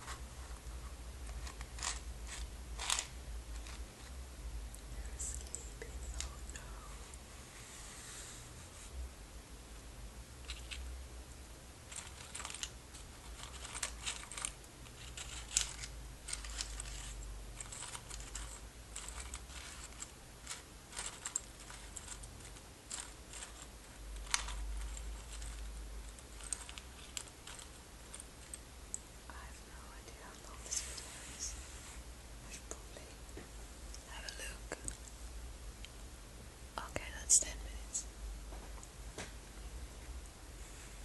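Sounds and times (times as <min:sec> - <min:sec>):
small hard objects clicking: 0:11.9 - 0:29.0.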